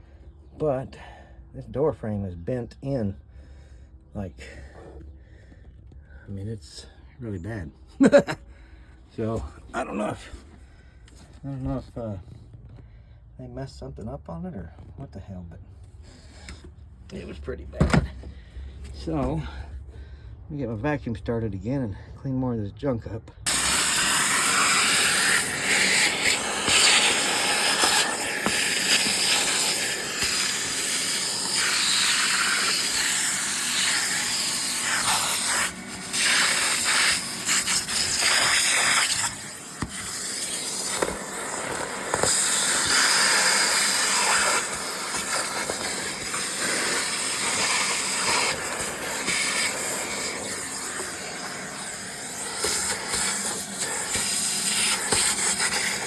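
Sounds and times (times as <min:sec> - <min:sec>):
vacuum cleaner running: 0:23.5 - 0:56.0.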